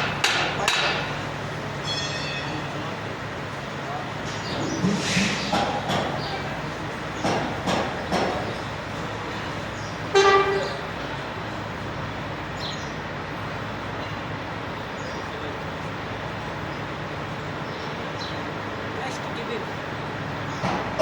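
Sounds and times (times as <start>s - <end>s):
vehicle horn toot: 10.1s - 10.9s.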